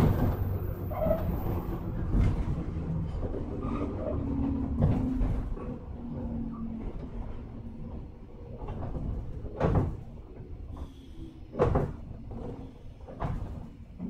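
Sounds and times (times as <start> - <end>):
train interior rumble: 0.0 - 14.0.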